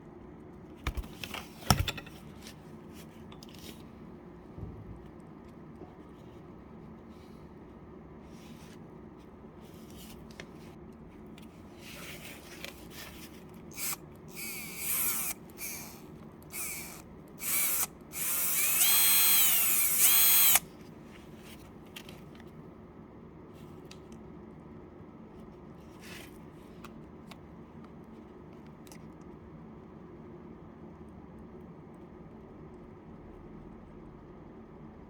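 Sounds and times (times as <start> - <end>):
electric drill whining: 13.7 - 20.6.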